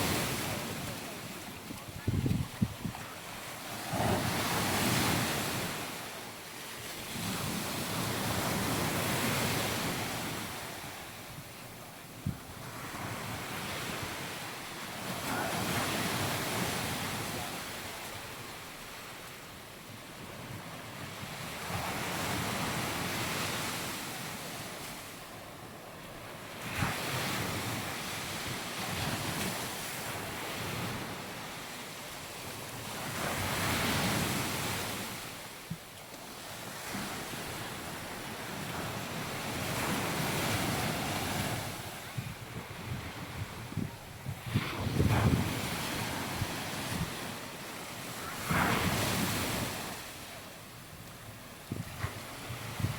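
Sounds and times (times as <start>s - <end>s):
waves breaking on beach: 0.0s - 52.9s.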